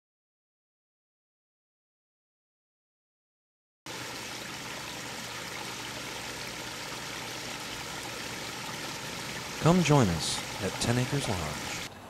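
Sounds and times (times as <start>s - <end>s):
running water rushing: 3.9s - 11.9s.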